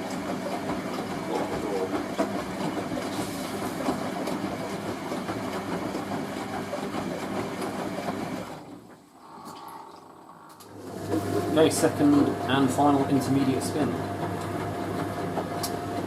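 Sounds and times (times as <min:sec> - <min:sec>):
washing machine running: 0:00.0 - 0:16.0.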